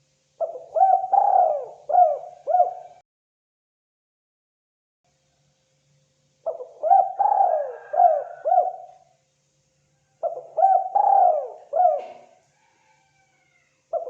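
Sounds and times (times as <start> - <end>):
dove cooing: 0.4 - 3.0, 6.4 - 9.0, 10.2 - 14.0.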